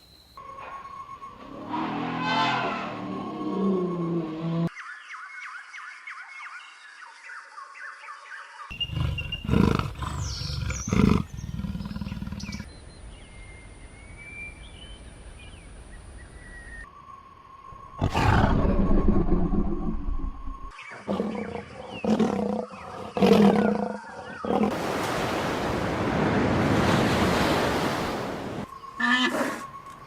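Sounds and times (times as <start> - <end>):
big cat roaring and growling: 1.5 - 4.7, 8.7 - 12.6, 17.9 - 24.8.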